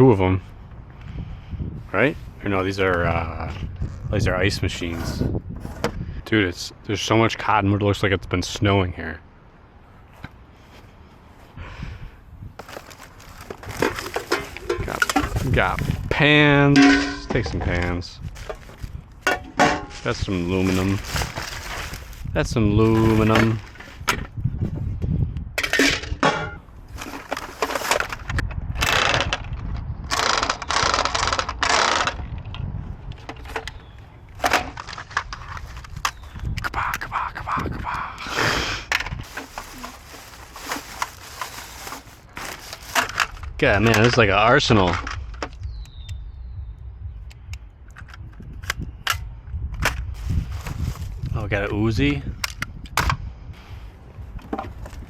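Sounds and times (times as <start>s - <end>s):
metal pans scraping and clattering: 12.6s - 15.9s, 16.7s - 17.6s, 19.3s - 21.9s, 25.6s - 28.2s.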